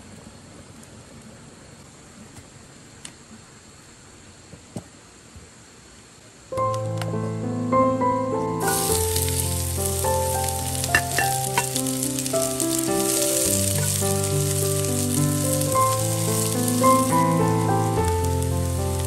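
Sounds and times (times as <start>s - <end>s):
soft piano music: 6.6s - 19.0s
shallots sizzling in hot oil: 8.6s - 19.0s
metal spatula tapping pan: 10.9s - 11.8s.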